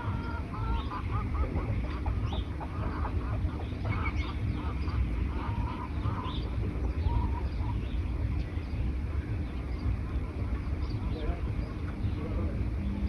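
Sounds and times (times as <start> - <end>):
birds making harsh calls: 0.0 - 13.0
steady low rumble: 0.0 - 13.0.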